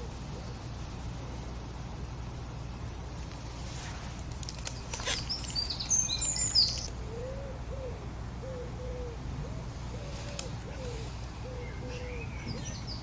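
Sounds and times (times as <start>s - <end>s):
low background hum: 0.0s - 13.0s
songbird twittering chirps: 4.6s - 13.0s
low bird call notes: 5.0s - 13.0s.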